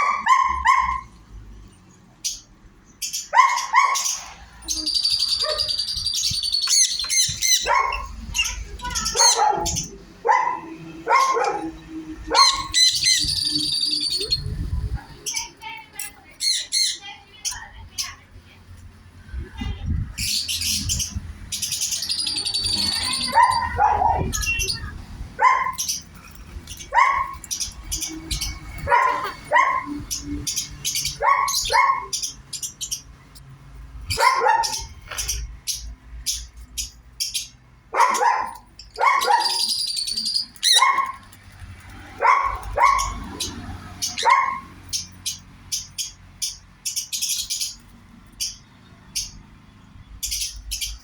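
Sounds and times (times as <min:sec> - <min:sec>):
parrots harsh calls: 0:03.0 - 0:10.0, 0:10.6 - 0:15.6, 0:16.4 - 0:17.7, 0:20.2 - 0:33.1, 0:34.1 - 0:41.3, 0:42.2 - 0:47.8.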